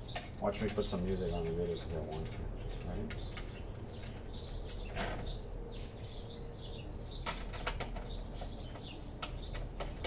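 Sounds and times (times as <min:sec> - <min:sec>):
small birds chirping: 0:00.0 - 0:10.0
sharp clicks: 0:08.7 - 0:10.0.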